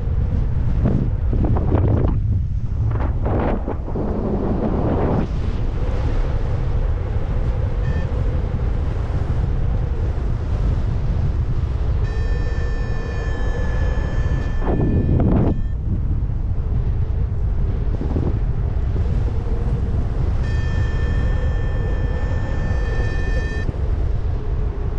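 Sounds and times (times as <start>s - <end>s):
heavy steady rumble: 0.0s - 24.9s
wind buffeting microphone: 0.0s - 24.9s
short electronic beep: 7.8s - 8.1s, 12.1s - 15.8s, 20.4s - 23.7s
steady electronic tone: 7.8s - 8.3s, 11.9s - 15.9s, 20.3s - 23.8s.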